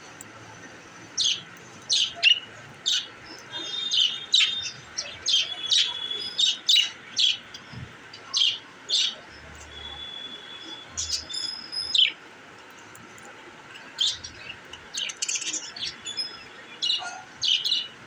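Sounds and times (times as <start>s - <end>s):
budgerigars chirping: 2.0s - 7.4s.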